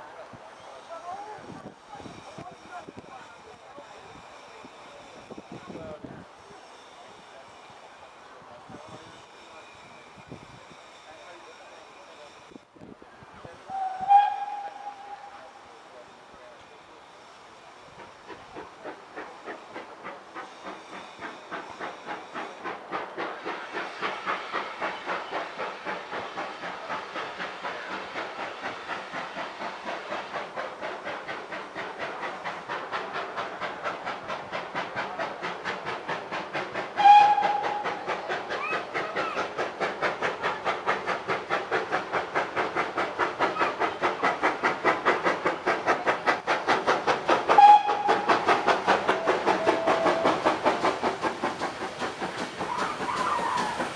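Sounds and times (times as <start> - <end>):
steam locomotive chuffing: 0.0 - 53.9
steam whistle blast: 13.7 - 15.6, 37.0 - 38.0, 47.5 - 48.5.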